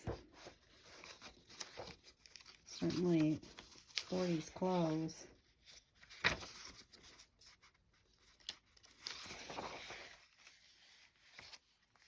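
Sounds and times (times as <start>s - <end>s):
paper rustling: 0.0s - 12.0s
paper sliding or pages turning: 6.0s - 7.1s, 8.9s - 11.6s.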